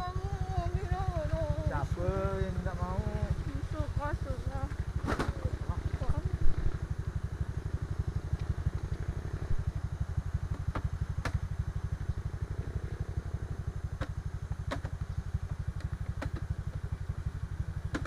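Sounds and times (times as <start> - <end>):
motorcycle engine running: 0.0 - 18.0
bike jolting on rough road: 3.0 - 6.9.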